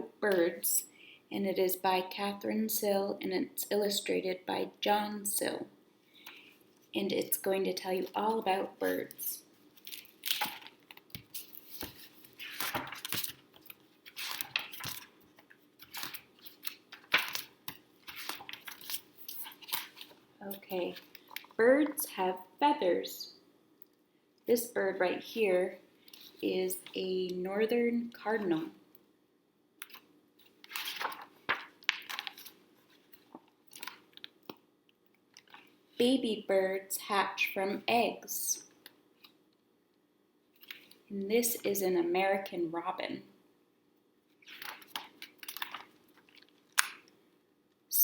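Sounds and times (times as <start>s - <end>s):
book pages rustling and turning: 8.8s - 22.0s, 29.8s - 35.8s, 40.5s - 41.0s, 44.3s - 47.1s.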